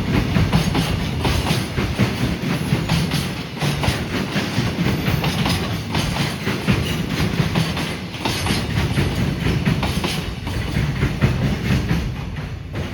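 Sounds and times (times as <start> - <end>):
train rumble: 0.0 - 12.9
train wheels clattering: 0.0 - 12.9.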